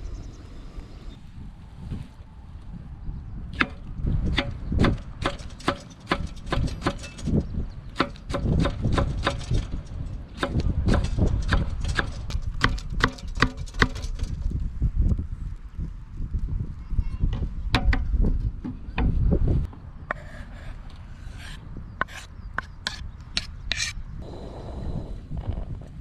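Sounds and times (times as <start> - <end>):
wind rumble on microphone: 0.0 - 26.0
knife chopping on cutting board: 20.1 - 23.0.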